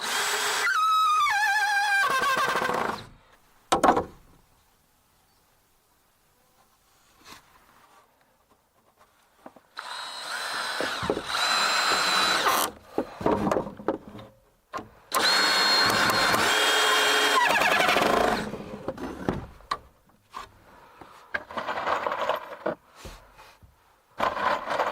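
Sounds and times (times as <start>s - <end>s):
power tool whining: 0.0s - 3.1s, 9.8s - 12.8s, 15.1s - 18.6s
knocks and scrapes: 12.8s - 14.4s, 18.4s - 24.9s.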